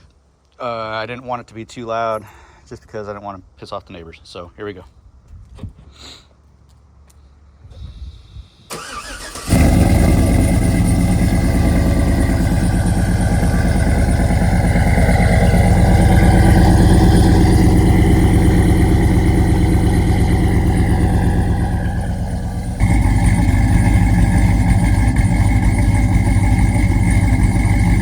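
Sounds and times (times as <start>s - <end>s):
car engine starting and idling: 8.7s - 28.0s.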